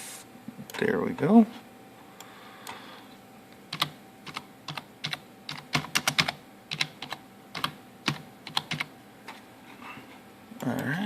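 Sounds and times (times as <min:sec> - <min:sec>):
computer keyboard typing: 0:03.7 - 0:08.9.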